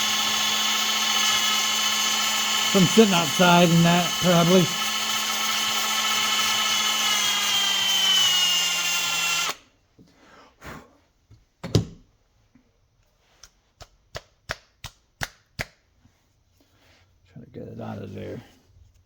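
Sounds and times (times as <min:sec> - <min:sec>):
small power tool motor running: 0:00.0 - 0:09.6.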